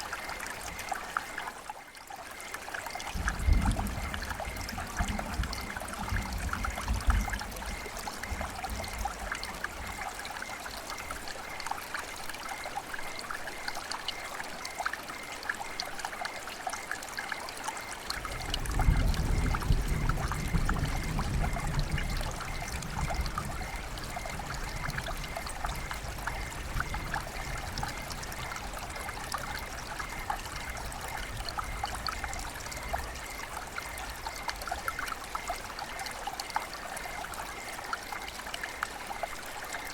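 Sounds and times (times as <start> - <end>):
river water babbling: 0.0 - 39.9
low rumble in water: 2.9 - 11.1, 18.1 - 39.0.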